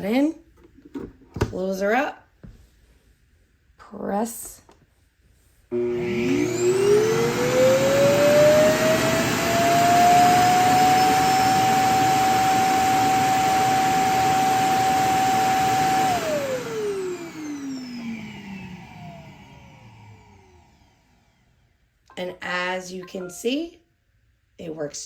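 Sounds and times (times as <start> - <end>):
suction motor rushing and whining: 5.7 - 21.2.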